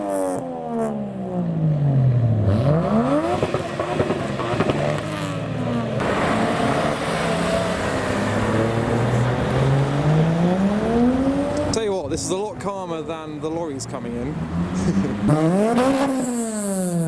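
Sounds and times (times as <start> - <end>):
car engine revving: 0.0 - 12.0, 13.3 - 17.0
car engines driving away: 0.0 - 17.0.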